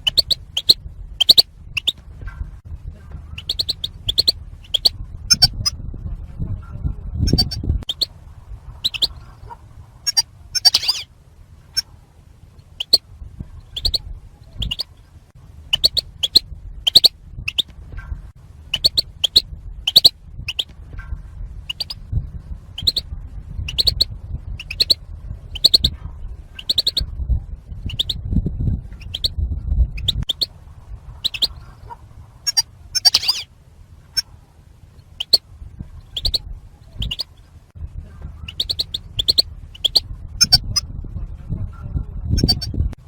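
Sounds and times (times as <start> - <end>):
finches giving contact calls: 0.0 - 2.0, 3.1 - 5.8, 7.2 - 8.1, 8.7 - 11.1, 12.6 - 13.0, 13.6 - 15.0, 15.7 - 17.8, 18.7 - 20.8, 21.6 - 27.1, 27.7 - 28.3, 28.9 - 30.5, 31.1 - 34.4, 35.0 - 37.5, 38.2 - 40.9, 42.3 - 42.8
low rumble: 0.0 - 43.0.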